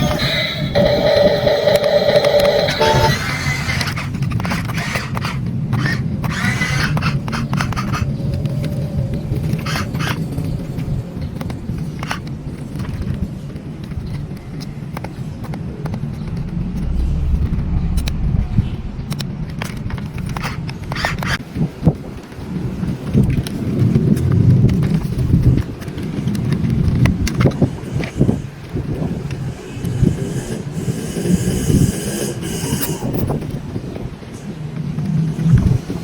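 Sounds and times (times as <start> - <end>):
toy excavator motor rumbling: 0.0 - 10.5, 24.8 - 34.0.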